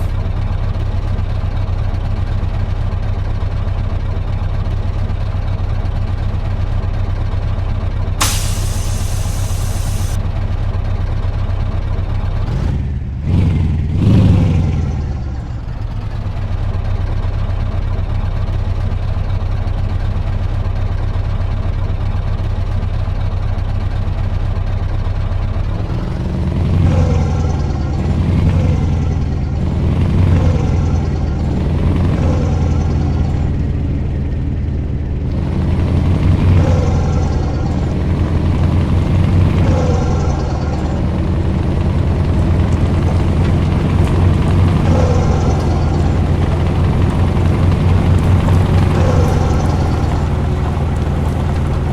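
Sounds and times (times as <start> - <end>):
truck diesel engine running: 0.0 - 20.2, 22.0 - 51.9.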